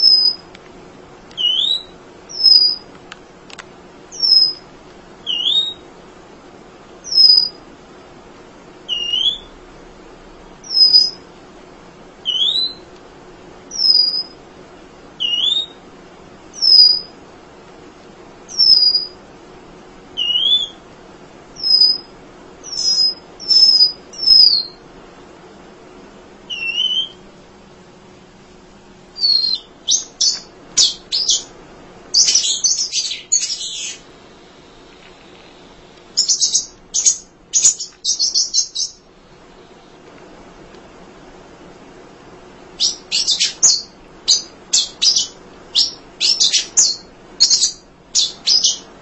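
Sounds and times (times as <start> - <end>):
bird chirps: 0.0 - 0.4, 1.4 - 2.9, 4.1 - 4.6, 5.2 - 5.8, 7.0 - 7.6, 8.9 - 9.5, 10.6 - 11.2, 12.2 - 12.9, 13.7 - 14.4, 15.2 - 15.8, 16.6 - 17.1, 18.5 - 19.2, 20.2 - 20.8, 21.6 - 24.8, 26.5 - 27.2, 29.2 - 31.5, 32.1 - 34.0, 36.2 - 39.1, 42.8 - 48.9
songbird whistling: 0.0 - 0.4, 1.4 - 2.9, 4.1 - 4.6, 5.2 - 5.8, 7.0 - 7.6, 8.9 - 9.5, 10.6 - 11.2, 12.2 - 12.9, 13.7 - 14.4, 15.2 - 15.8, 16.6 - 17.1, 18.5 - 19.2, 20.2 - 20.8, 21.6 - 24.8, 26.5 - 27.2, 29.2 - 31.5, 32.1 - 34.0, 36.2 - 39.1, 42.8 - 48.9.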